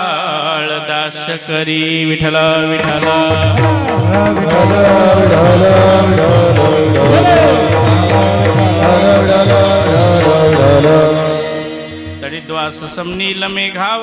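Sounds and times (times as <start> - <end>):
drum beat: 2.8 - 12.3
jingling hand cymbals: 2.8 - 13.6
wavering melody: 3.3 - 13.1.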